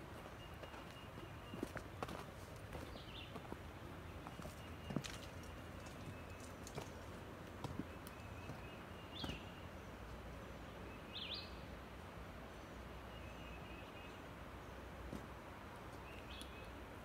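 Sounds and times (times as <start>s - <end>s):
outdoor ambience hiss: 0.0s - 17.0s
bird chirps: 7.8s - 9.7s.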